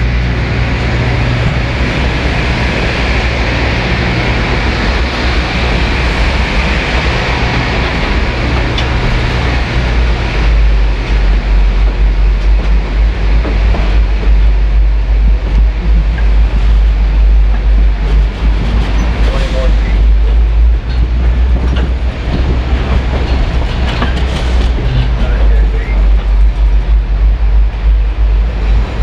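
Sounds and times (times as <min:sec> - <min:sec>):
train rumbling past: 0:00.0 - 0:29.0.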